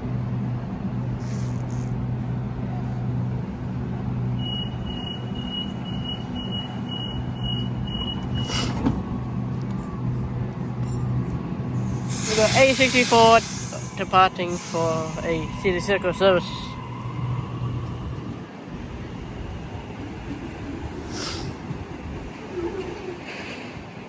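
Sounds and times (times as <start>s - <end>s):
electric train humming: 0.0s - 24.0s
door-closing warning beeps: 4.5s - 9.0s
hiss of air from doors: 8.4s - 9.0s, 11.8s - 15.3s, 21.1s - 21.5s.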